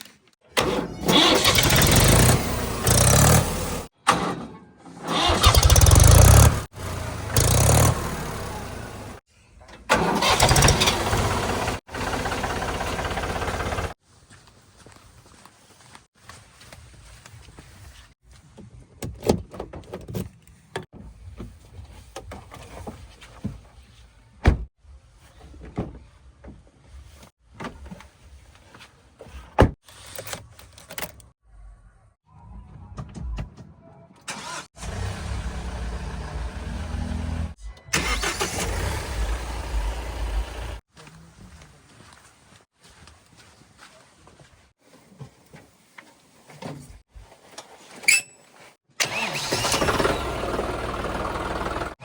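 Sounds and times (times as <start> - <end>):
heavy diesel engine running: 5.2 - 9.2, 10.0 - 13.9, 49.0 - 51.9.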